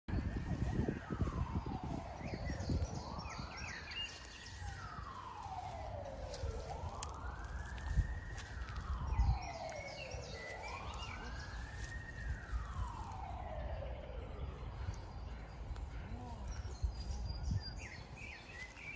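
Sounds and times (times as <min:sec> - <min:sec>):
wailing siren: 0:00.1 - 0:18.9.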